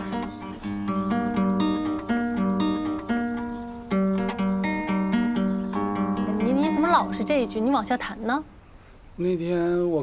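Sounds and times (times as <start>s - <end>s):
acoustic guitar plucked notes: 0.0s - 8.6s.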